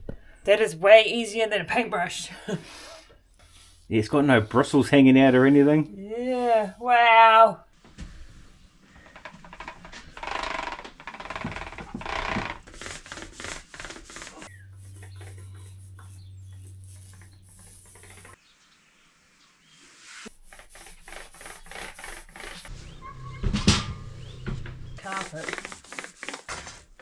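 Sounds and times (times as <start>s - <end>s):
paint roller rolling: 11.2s - 18.4s, 20.2s - 22.8s, 25.0s - 27.0s.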